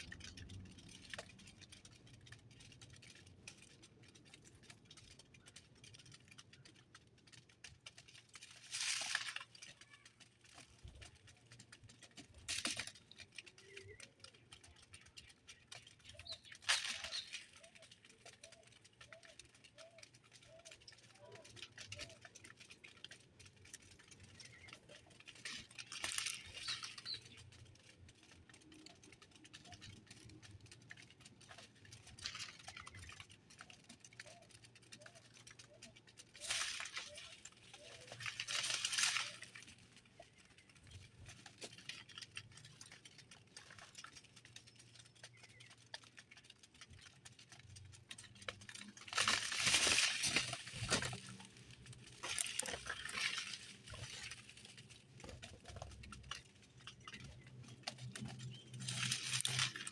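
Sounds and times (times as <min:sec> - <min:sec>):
birds tapping and pecking: 0:00.0 - 0:59.9
rustling: 0:00.0 - 0:59.9
faint bird chirps: 0:16.0 - 0:17.9.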